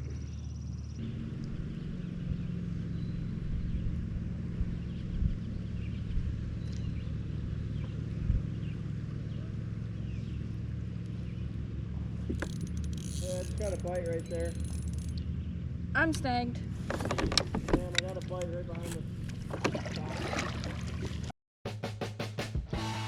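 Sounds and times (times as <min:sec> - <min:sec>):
small engine running: 0:00.0 - 0:19.8.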